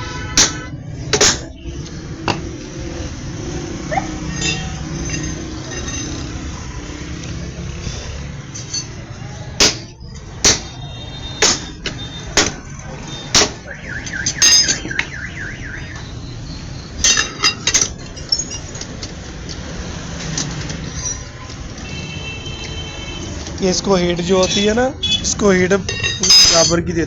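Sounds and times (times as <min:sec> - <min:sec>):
sharp metallic knocks: 0:00.3 - 0:01.6, 0:09.6 - 0:15.2.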